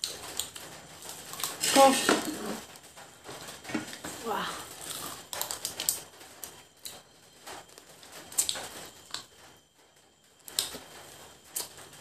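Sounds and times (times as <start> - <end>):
chewing and lip-smacking: 4.7 - 7.0, 7.6 - 9.3.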